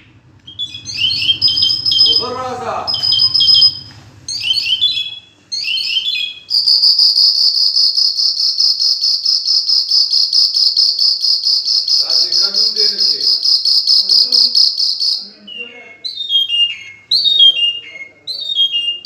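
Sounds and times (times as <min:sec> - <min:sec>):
high rapidly pulsing trill: 0:00.0 - 0:05.2, 0:05.8 - 0:15.4
bird chirping song: 0:00.0 - 0:19.0.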